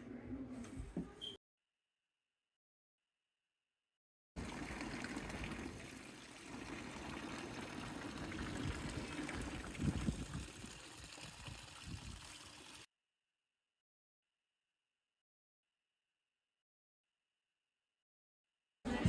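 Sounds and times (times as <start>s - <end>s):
water rushing: 4.4s - 12.9s.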